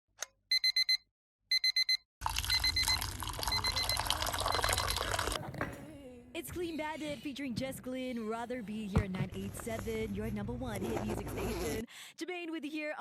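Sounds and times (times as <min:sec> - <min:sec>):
alarm clock beeping: 0:00.5 - 0:05.0.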